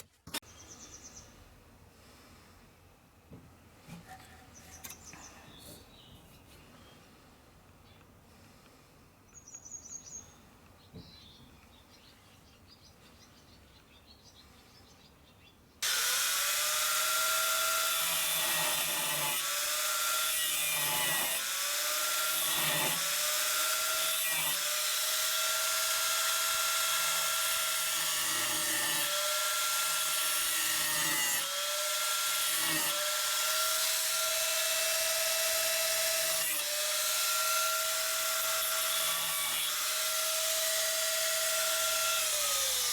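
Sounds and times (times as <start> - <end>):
faint bird chirp: 0.5 - 1.5, 4.3 - 7.1, 9.2 - 15.8
power tool whining: 15.8 - 42.9.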